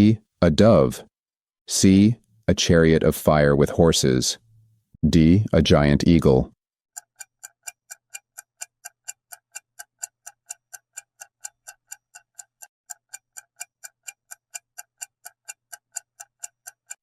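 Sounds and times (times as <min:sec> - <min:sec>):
clock ticking: 0:07.0 - 0:17.0.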